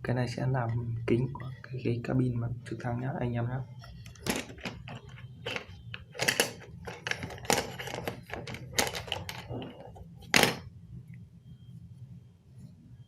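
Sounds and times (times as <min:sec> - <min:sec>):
hands handling model pieces: 0:04.0 - 0:10.6.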